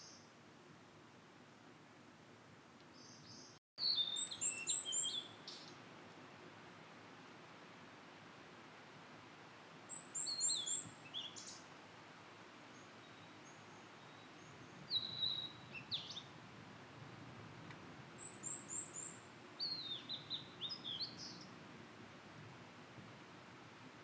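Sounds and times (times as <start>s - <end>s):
bird singing whistled notes: 2.9s - 5.8s, 9.9s - 11.6s, 12.7s - 16.3s, 18.2s - 21.5s.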